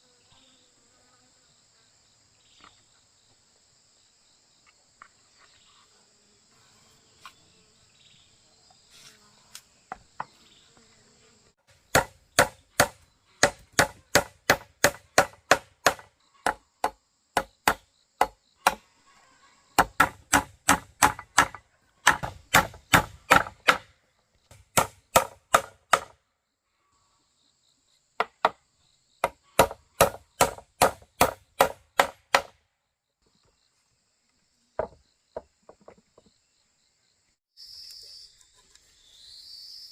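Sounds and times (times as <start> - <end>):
insects buzzing: 0.0 - 39.9
hand tool knocking on wood: 19.8 - 23.8.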